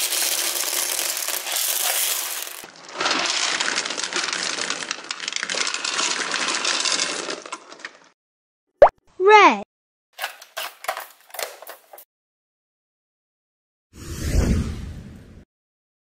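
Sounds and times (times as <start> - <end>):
beads clattering onto a table: 0.0 - 2.6.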